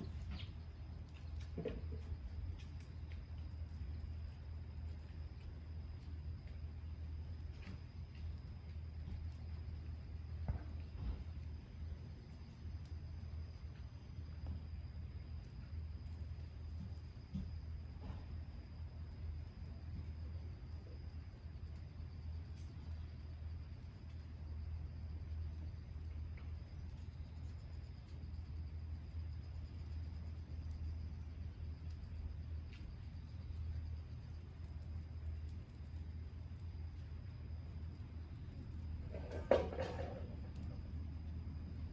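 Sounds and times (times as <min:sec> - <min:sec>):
constant low hum: 0:00.0 - 0:41.9
crickets chirping: 0:00.0 - 0:41.9.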